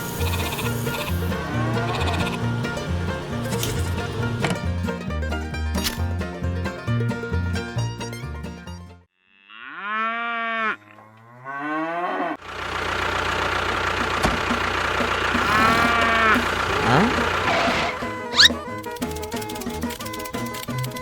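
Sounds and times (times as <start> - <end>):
engine running: 0.0 - 7.0, 12.4 - 20.6
cow mooing: 0.2 - 2.6, 9.2 - 12.4, 15.4 - 18.5.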